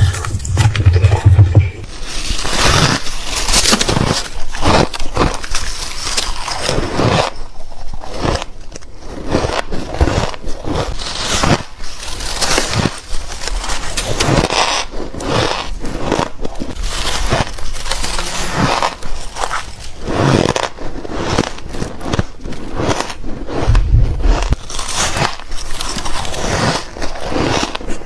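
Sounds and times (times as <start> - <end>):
ice crunching between teeth: 2.0 - 28.0.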